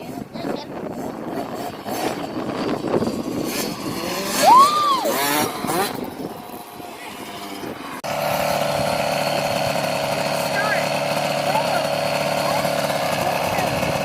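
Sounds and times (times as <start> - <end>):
dirt bike engine revving: 0.0 - 14.0
voices: 6.4 - 7.9, 9.7 - 14.0.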